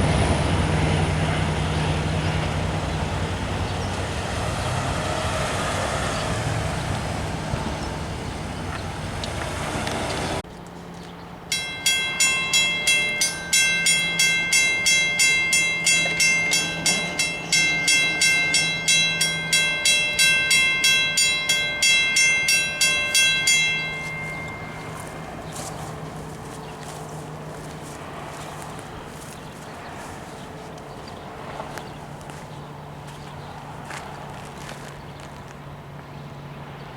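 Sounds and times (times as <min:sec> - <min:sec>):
railroad crossing bell ringing: 0:11.5 - 0:32.4.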